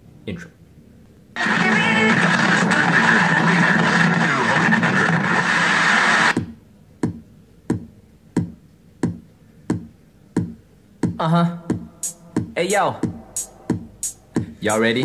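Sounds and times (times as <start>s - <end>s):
drum-machine kick beat: 6.3s - 15.0s
hip-hop music through speaker: 8.4s - 15.0s.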